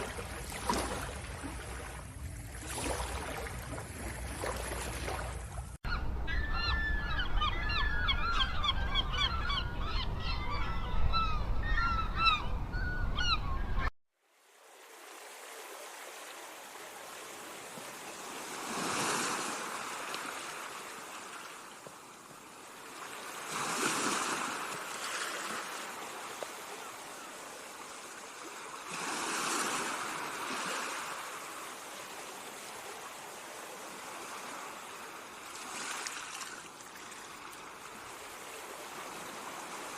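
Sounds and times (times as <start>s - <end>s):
ocean waves washing in: 0.0s - 5.8s, 14.2s - 39.9s.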